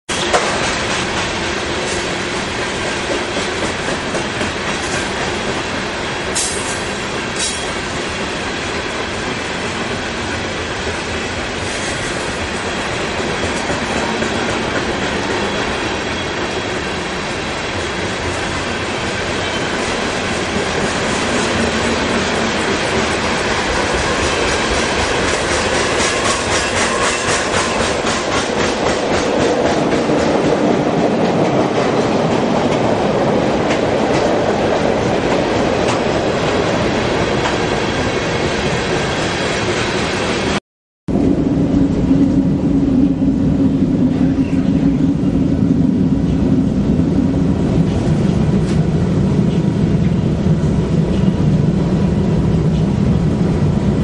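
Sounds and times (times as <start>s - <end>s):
freight train rumbling past: 0.1s - 54.0s.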